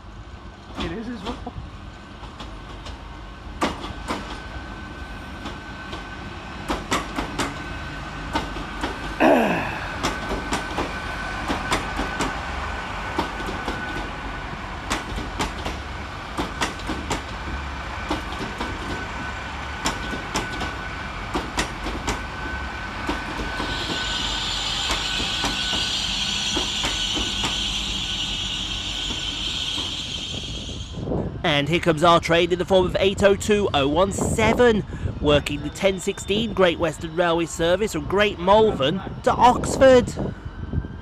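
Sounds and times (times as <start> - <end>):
train whine: 0.0 - 41.0
train wheels clicking over rail joints: 0.5 - 4.8, 5.4 - 7.7, 8.3 - 12.4, 13.1 - 19.1, 19.7 - 27.8.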